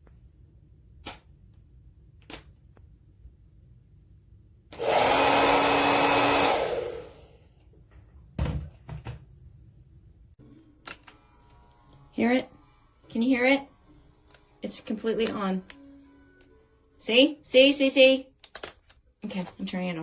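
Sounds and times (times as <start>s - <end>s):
hair dryer blowing: 4.7s - 7.4s.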